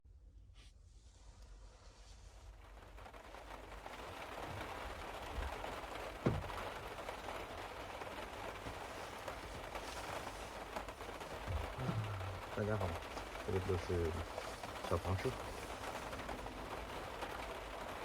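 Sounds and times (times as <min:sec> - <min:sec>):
rain pattering on a car roof: 0:02.0 - 0:18.0
dull knock: 0:06.2 - 0:06.5.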